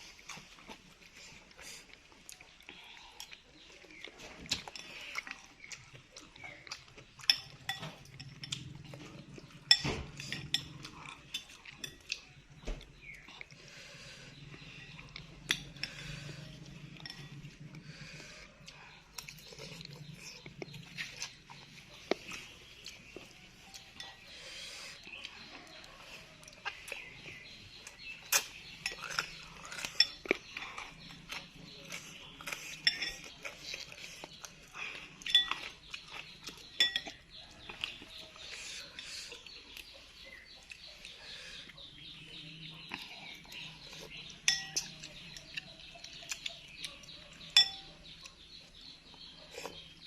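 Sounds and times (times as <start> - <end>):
person chewing: 0.0 - 41.9, 42.7 - 50.0
metal spoon clinking bowl: 7.3 - 12.1, 16.9 - 17.5, 32.7 - 33.4, 35.2 - 37.4, 44.2 - 45.5, 47.5 - 48.0.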